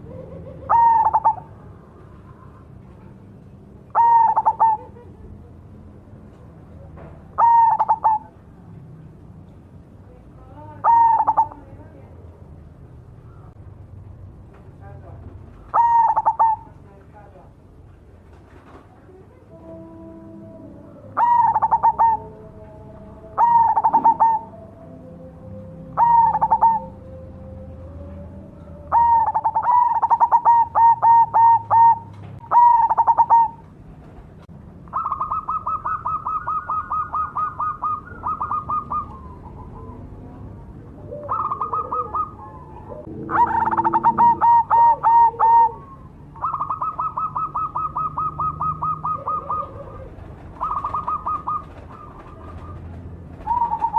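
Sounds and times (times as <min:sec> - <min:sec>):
dove cooing: 0:00.0 - 0:03.3, 0:03.9 - 0:05.6, 0:07.2 - 0:08.4, 0:10.6 - 0:11.8, 0:15.6 - 0:16.7, 0:19.2 - 0:33.7, 0:34.9 - 0:53.9.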